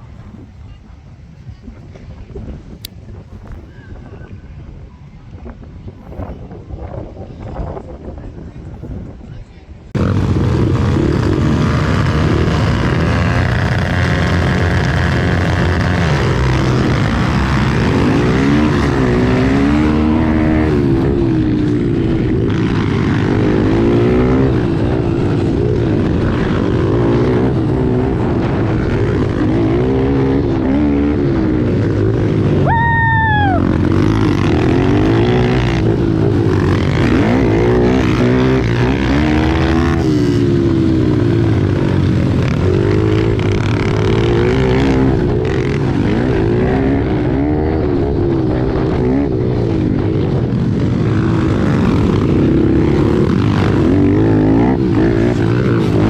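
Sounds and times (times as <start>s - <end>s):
pit bike engines revving: 9.9s - 56.0s
high whine falling in pitch: 32.6s - 37.6s.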